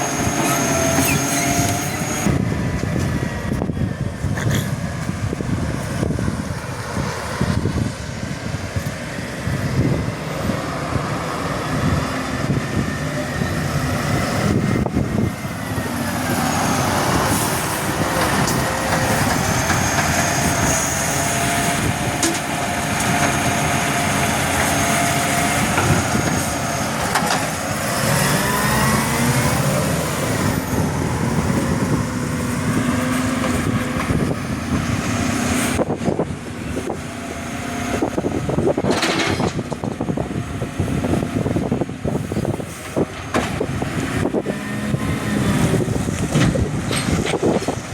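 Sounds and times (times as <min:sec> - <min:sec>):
whining tone: 0:00.0 - 0:04.4, 0:09.5 - 0:42.6
garbage truck engine running: 0:00.0 - 0:47.9.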